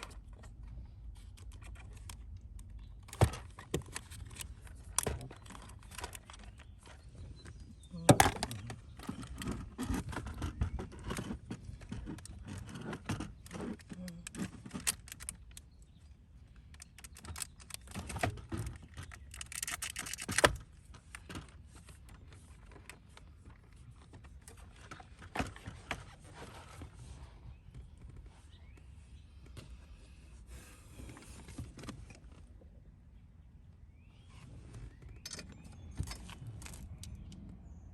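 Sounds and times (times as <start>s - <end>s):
tools clicking and clattering: 16.7s - 21.6s.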